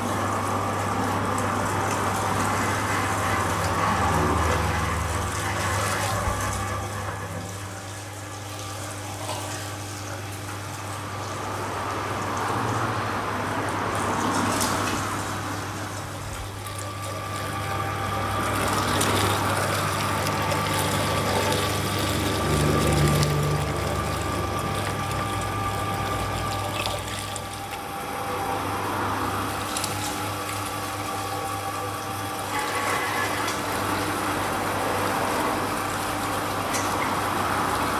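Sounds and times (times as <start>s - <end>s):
meat grinder running: 0.0s - 37.9s
high-pitched whine: 16.2s - 37.9s.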